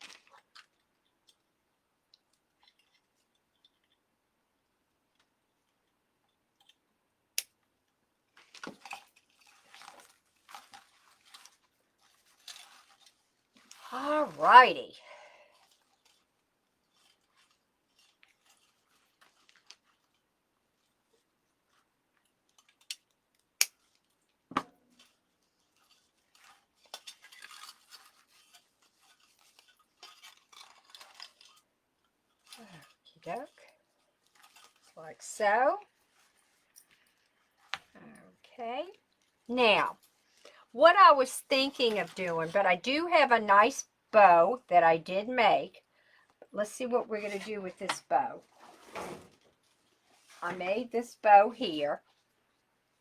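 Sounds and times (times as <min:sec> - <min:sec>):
plastic mesh crinkling: 0:00.0 - 0:01.4, 0:08.3 - 0:42.8.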